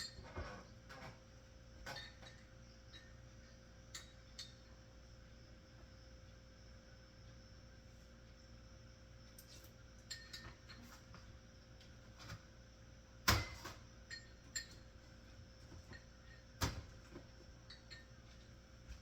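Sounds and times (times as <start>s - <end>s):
kitchenware clinking: 10.1s - 10.9s, 13.3s - 14.8s.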